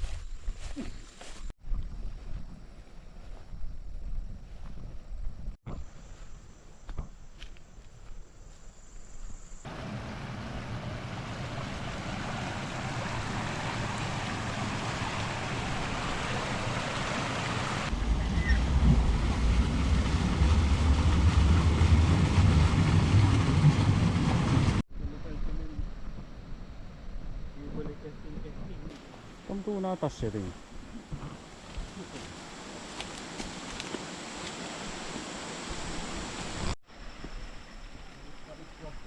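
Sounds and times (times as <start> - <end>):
stream water flowing: 9.7 - 24.8, 30.9 - 38.0
heavy low rumble: 17.9 - 26.8.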